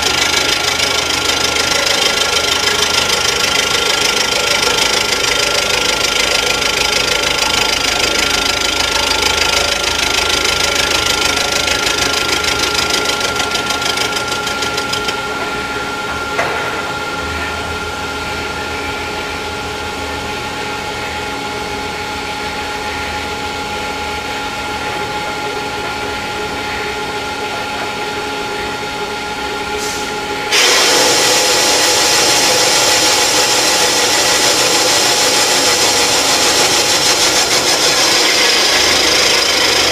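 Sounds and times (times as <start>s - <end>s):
machine whine and hum: 0.0s - 39.9s
cutting tool rattling: 34.4s - 39.9s.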